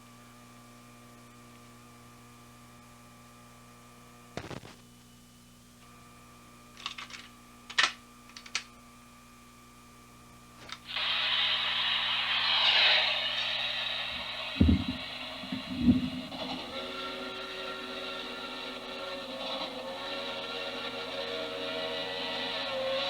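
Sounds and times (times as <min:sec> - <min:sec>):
steady electrical hum: 0:00.0 - 0:22.2.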